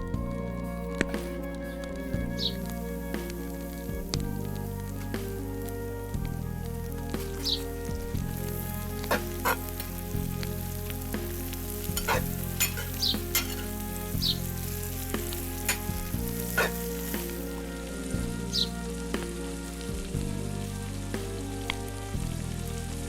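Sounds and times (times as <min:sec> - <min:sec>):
food sizzling in a pan: 0:08.2 - 0:20.4
utensil clicking against pan: 0:12.0 - 0:13.7.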